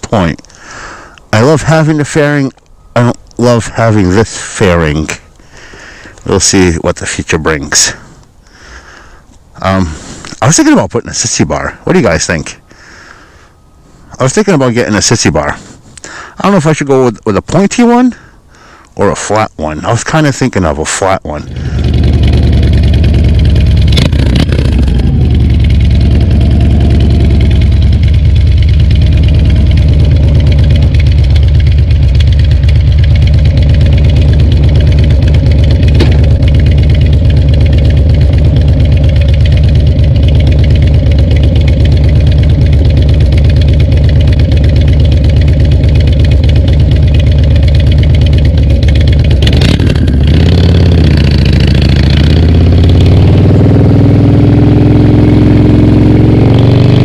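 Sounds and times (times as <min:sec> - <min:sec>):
motorcycle engine riding: 0:00.0 - 0:08.0, 0:20.7 - 0:57.0.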